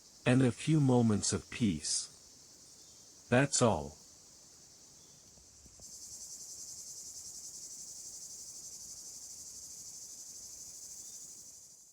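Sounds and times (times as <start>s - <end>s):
insects trilling: 0.0s - 11.9s.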